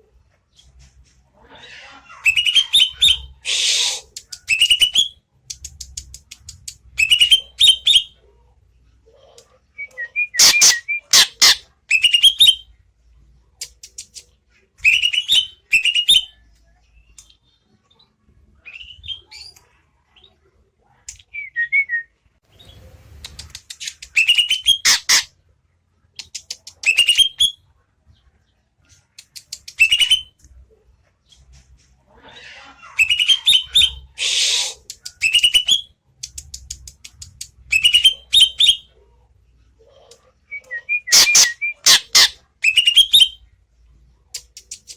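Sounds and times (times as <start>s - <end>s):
bird singing whistled notes: 40.6s - 43.4s.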